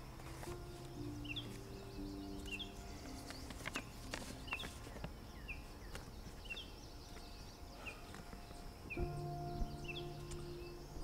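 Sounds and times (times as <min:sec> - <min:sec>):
small bird chirping: 0:00.0 - 0:11.0
paper unfolding crackles: 0:02.5 - 0:05.2.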